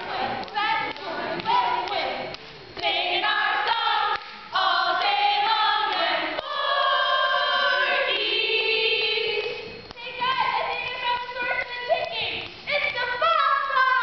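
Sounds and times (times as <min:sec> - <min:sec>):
group of voices singing: 0:00.0 - 0:14.0.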